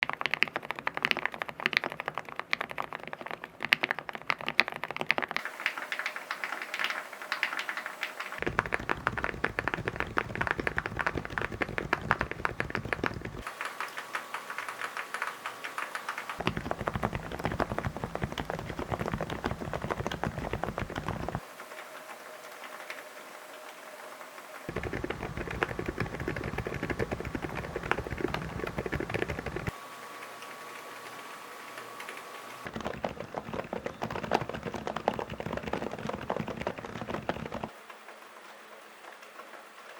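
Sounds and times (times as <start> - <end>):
fast typing on keyboards: 0.0 - 21.4, 24.7 - 29.8, 32.6 - 37.8.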